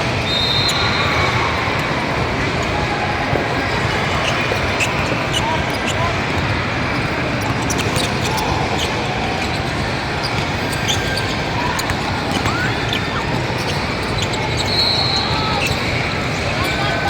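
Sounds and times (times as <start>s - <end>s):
crowd noise: 0.0s - 17.0s
sneakers squeaking: 0.0s - 17.0s
whistle blast: 0.2s - 1.4s, 14.6s - 15.7s.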